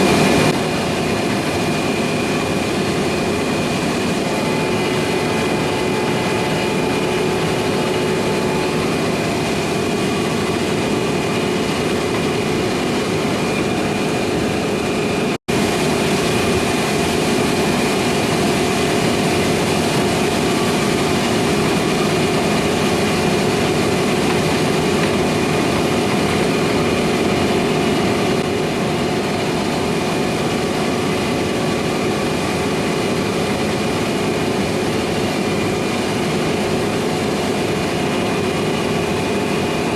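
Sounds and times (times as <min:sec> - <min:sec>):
diesel engine drone: 0:00.0 - 0:39.9
machinery whine: 0:00.0 - 0:39.9.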